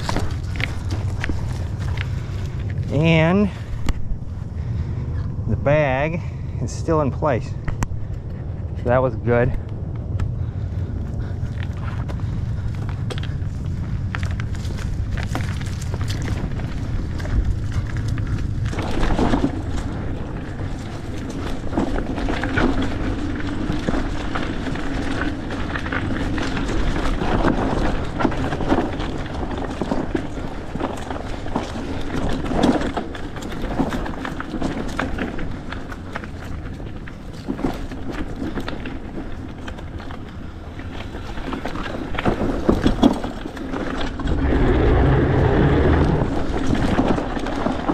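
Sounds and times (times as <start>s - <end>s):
bike knocking and rattling: 0.0s - 47.9s
bike tyres rumbling on dirt: 0.0s - 47.9s
wind on microphone: 44.1s - 47.9s.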